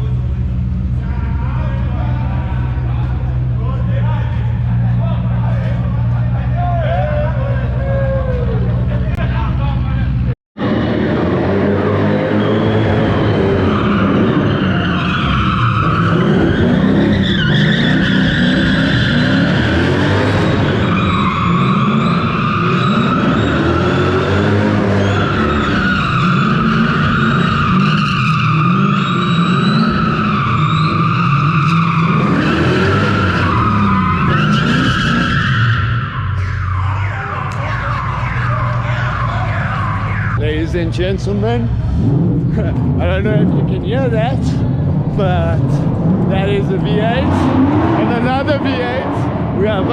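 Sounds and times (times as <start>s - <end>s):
car engines revving: 0.0s - 49.9s
tyres squealing: 12.0s - 40.4s.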